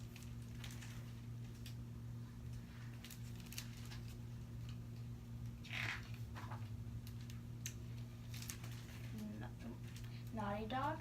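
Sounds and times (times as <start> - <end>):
low electrical hum: 0.0 - 11.0
paper page rustling: 5.6 - 7.2.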